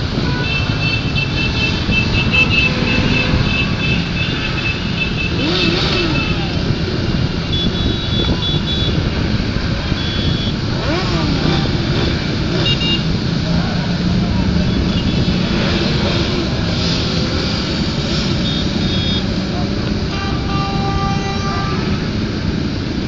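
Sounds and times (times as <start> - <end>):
motorcycles passing in traffic: 0.0 - 23.0.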